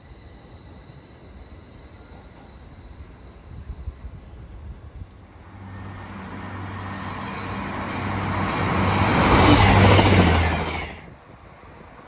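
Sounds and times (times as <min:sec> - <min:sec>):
diesel train engine: 0:05.2 - 0:12.0
wheels rumbling on rail: 0:05.2 - 0:12.0.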